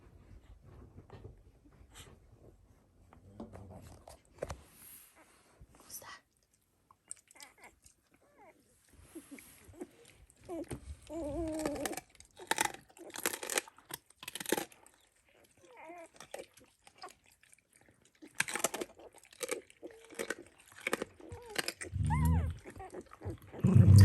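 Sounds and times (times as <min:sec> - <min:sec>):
dog whining: 0:07.4 - 0:08.7, 0:09.7 - 0:13.2, 0:15.6 - 0:16.2, 0:21.2 - 0:24.0
dog crunching bones: 0:10.5 - 0:23.6.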